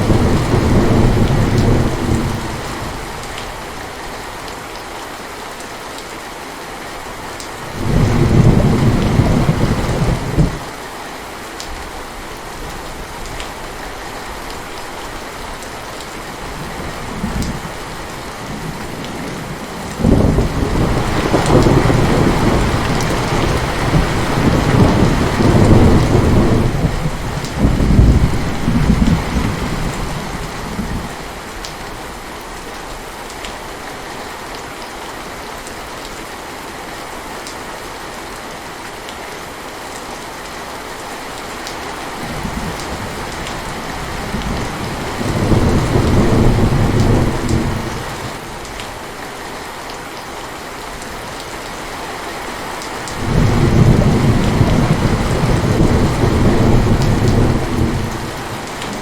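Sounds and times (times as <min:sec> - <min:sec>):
rolling thunder: 0:00.0 - 0:03.0, 0:18.5 - 0:31.1, 0:42.3 - 0:48.2, 0:53.2 - 0:59.0
heavy rain: 0:00.0 - 0:59.0.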